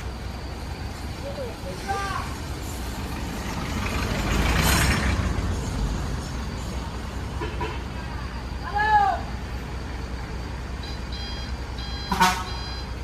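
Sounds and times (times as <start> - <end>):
heavy vehicle engine rumbling: 0.0 - 13.0.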